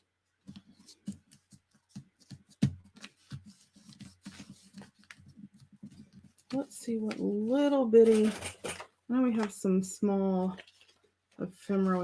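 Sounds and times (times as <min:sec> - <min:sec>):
paper rustling: 0:00.4 - 0:07.2, 0:10.4 - 0:12.0.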